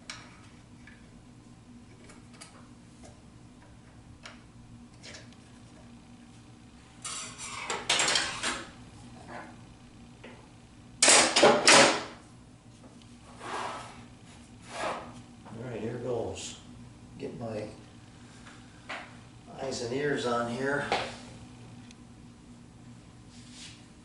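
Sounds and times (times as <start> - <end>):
tools clattering and scraping: 7.0 - 9.6.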